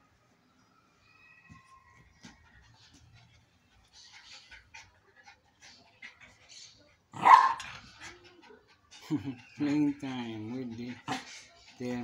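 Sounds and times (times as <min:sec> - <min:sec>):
puppy barking: 0:07.2 - 0:07.8.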